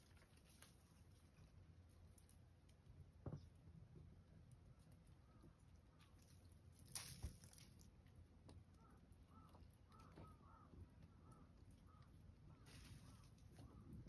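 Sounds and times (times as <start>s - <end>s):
soft rustle: 0.0s - 2.8s, 12.5s - 14.0s
distant bird calls: 8.7s - 14.0s.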